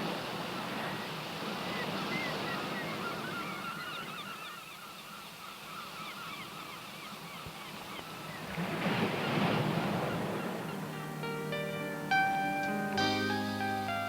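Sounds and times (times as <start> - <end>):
flock of birds calling: 0.6 - 11.8
steady background hiss: 9.8 - 14.0.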